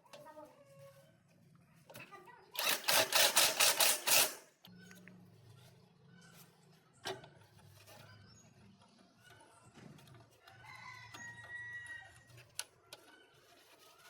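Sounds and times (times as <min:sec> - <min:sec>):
faint rooster crowing: 0:00.1 - 0:01.3, 0:10.0 - 0:14.0.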